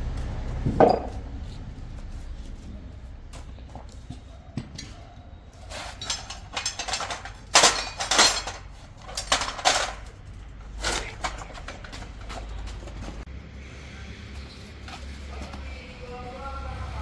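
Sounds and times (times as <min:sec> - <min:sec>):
metal parts clinking and knocking: 0:05.8 - 0:13.2.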